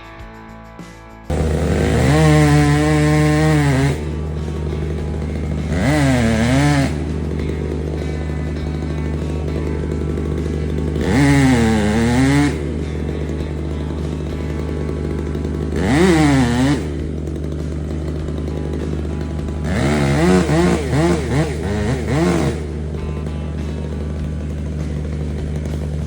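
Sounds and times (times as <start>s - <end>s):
chainsaw revving: 1.3s - 26.0s.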